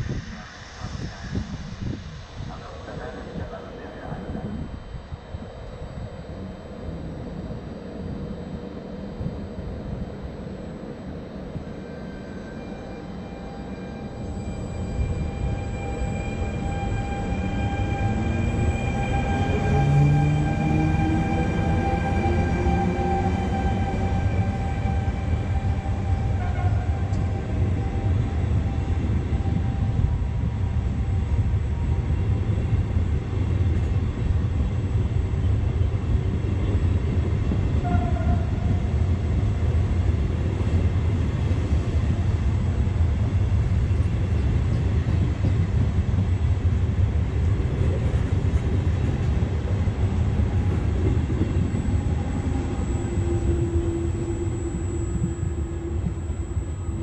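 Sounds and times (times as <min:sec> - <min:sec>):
locomotive whine: 0:00.0 - 0:57.0
train wheels rumbling on rails: 0:12.6 - 0:57.0.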